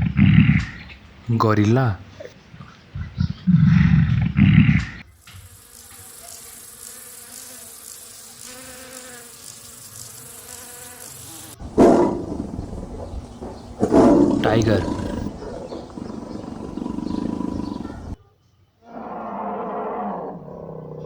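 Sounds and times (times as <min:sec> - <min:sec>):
gorilla deep rough calls: 0:00.0 - 0:01.0, 0:02.2 - 0:05.1, 0:11.6 - 0:18.2
insect-like buzz: 0:04.6 - 0:13.8.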